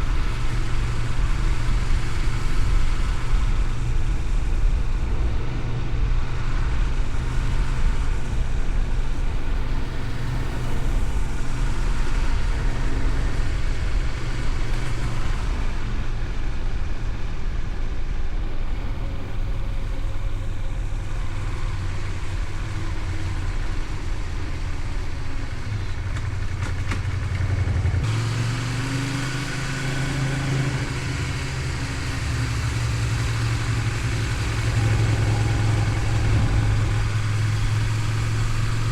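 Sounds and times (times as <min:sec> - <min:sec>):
motorcycle engine running: 0:00.0 - 0:38.9
road noise: 0:00.0 - 0:38.9
wind noise: 0:00.0 - 0:38.9.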